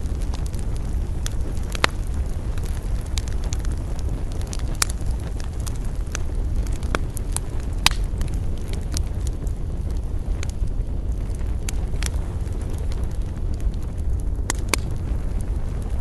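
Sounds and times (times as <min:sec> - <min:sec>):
campfire crackling and popping: 0:00.0 - 0:16.0
low rumble of wind: 0:00.0 - 0:16.0.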